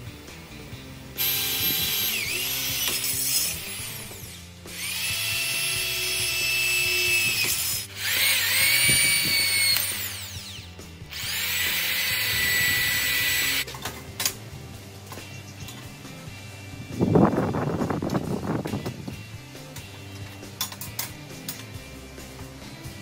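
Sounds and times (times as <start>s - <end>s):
electric drill boring through metal: 1.2s - 13.7s.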